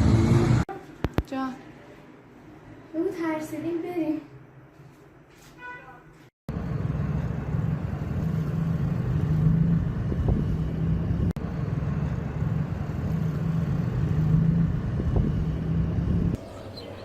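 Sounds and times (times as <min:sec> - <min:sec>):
vehicle engine droning: 0:00.0 - 0:00.7, 0:06.5 - 0:17.0.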